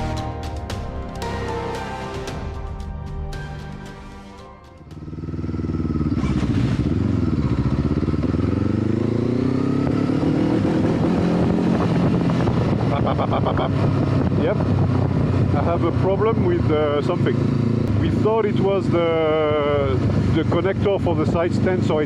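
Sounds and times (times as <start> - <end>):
motorcycle engine accelerating: 4.8 - 22.0.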